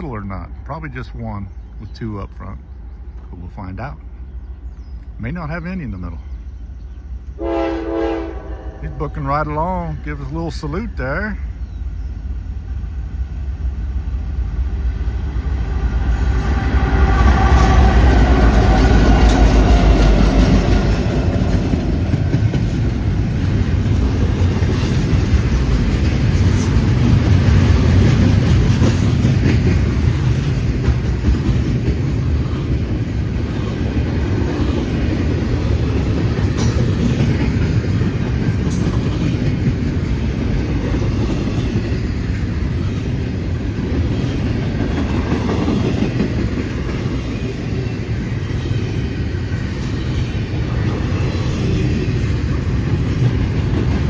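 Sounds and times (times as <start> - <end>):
diesel locomotive rumble: 0.0 - 54.0
train wheels clacking over rail joints: 17.1 - 54.0.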